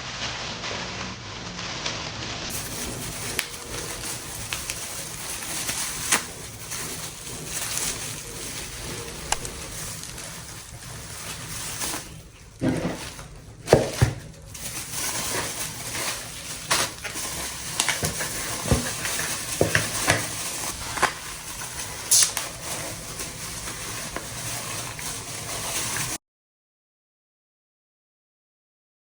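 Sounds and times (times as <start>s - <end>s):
utensil scraping a pan: 1.7s - 26.2s
food sizzling in a frying pan: 15.3s - 26.2s.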